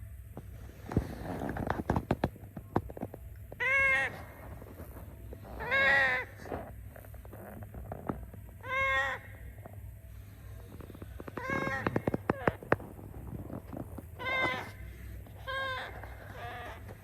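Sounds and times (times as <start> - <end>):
parrot calling: 3.5 - 7.6, 8.5 - 17.0.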